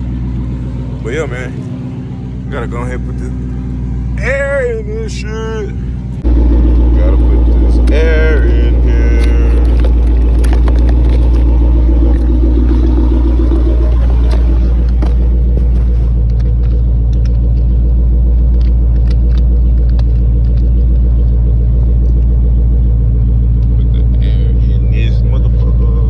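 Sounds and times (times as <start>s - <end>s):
motor running with low rumble: 5.7s - 26.0s.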